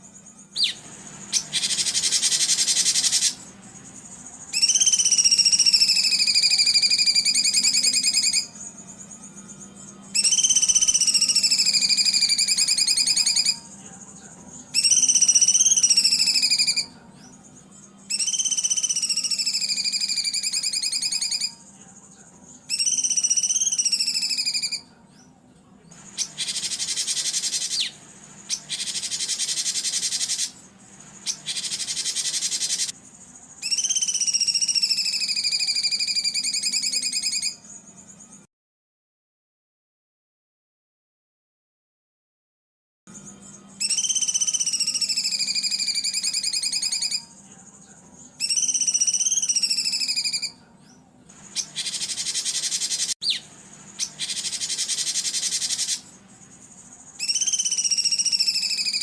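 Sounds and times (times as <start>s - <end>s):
harsh rasping bird calls: 0.0s - 21.7s, 25.9s - 37.8s, 43.8s - 47.4s, 48.4s - 50.6s, 51.3s - 59.0s
songbird trilling: 0.2s - 21.7s, 22.6s - 24.9s, 25.9s - 37.8s, 43.2s - 59.0s.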